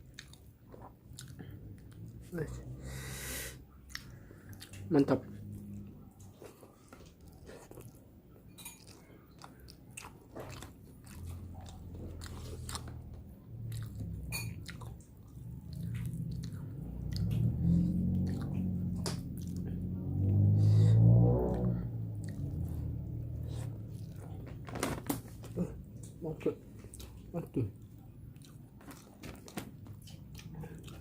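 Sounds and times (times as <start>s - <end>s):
crunchy chewing: 0.0s - 2.2s, 3.9s - 20.4s, 22.2s - 26.2s, 26.8s - 31.0s
low hum: 11.3s - 28.4s.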